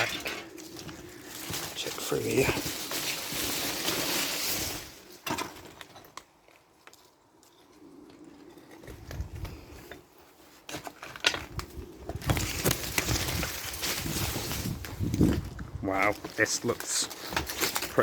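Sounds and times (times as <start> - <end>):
pigeons cooing: 0.0 - 2.9, 7.6 - 10.4, 11.4 - 14.4
footsteps on debris: 0.0 - 7.2, 8.8 - 18.0.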